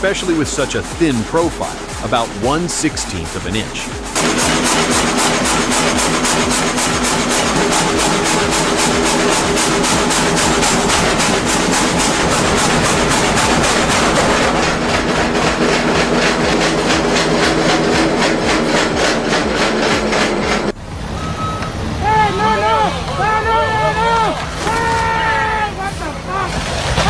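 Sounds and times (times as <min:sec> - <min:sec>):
fast chopping rhythm: 0:00.0 - 0:20.7
machinery engine drone: 0:00.0 - 0:27.0.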